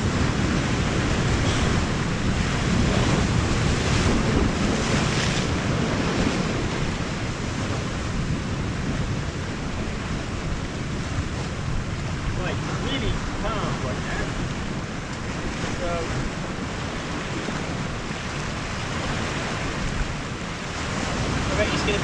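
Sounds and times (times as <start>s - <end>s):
sea surf washing on shore: 0.0s - 22.0s
wind rumbling on microphone: 0.0s - 22.0s.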